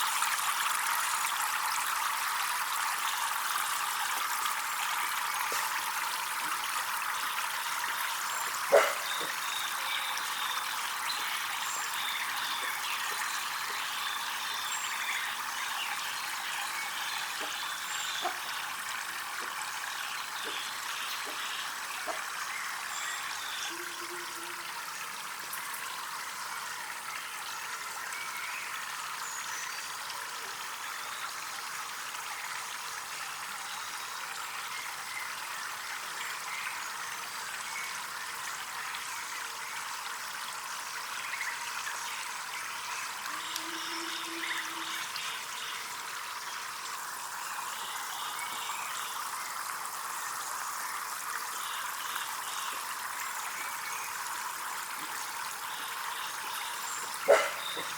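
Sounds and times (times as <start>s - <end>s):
water trickling: 0.0s - 57.9s.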